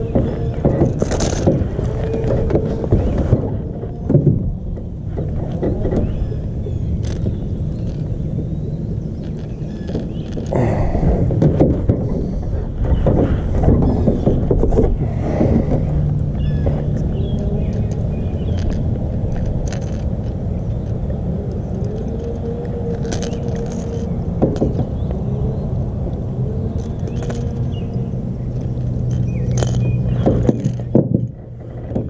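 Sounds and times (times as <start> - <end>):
low rumble with hum: 0.0 - 32.0
metallic clicks and rattles: 15.6 - 25.1, 26.1 - 32.0.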